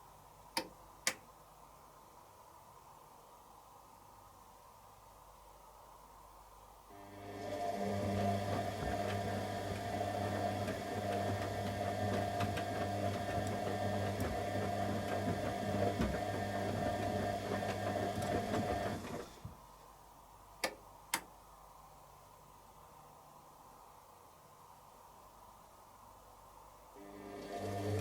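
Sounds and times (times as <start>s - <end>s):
sharp clicks: 0.6s - 1.3s, 20.6s - 21.3s
washing machine motor humming: 7.0s - 19.4s, 27.0s - 28.0s.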